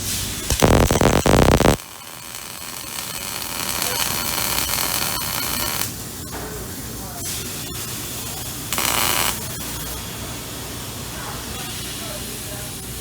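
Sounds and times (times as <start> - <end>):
welding arc crackling: 0.0 - 6.3, 7.0 - 10.0.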